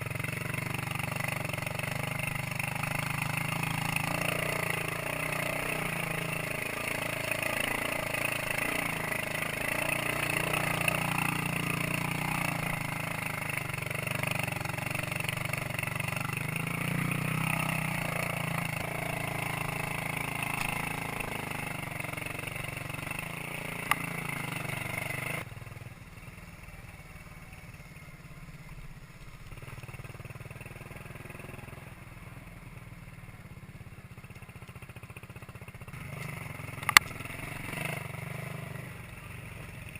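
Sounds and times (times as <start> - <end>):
two-stroke motorcycle engine: 0.0 - 39.9.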